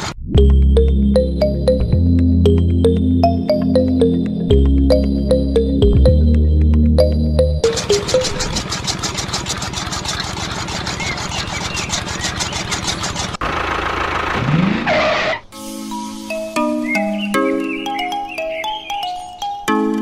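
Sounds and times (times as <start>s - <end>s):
mallet percussion music: 0.4s - 8.5s, 16.1s - 20.0s
blade wheel ticking: 7.6s - 13.4s
small motor whirring: 7.7s - 13.4s.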